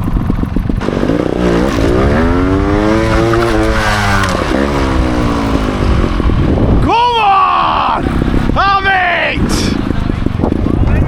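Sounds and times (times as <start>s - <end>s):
motorcycle engine revving: 0.0s - 6.9s.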